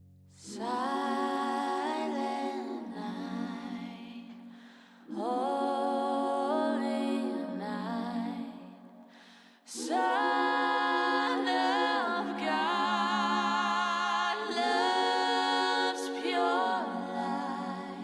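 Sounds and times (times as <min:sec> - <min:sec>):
voices singing in harmony: 0:00.4 - 0:18.0.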